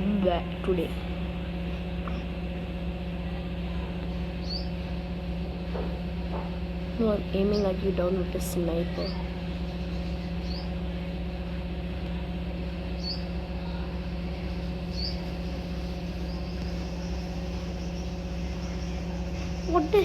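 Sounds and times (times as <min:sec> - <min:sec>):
steady low hum: 0:00.0 - 0:20.0
bird chirping: 0:04.4 - 0:04.8, 0:08.9 - 0:10.8, 0:13.0 - 0:13.3, 0:14.8 - 0:15.3, 0:16.1 - 0:20.0.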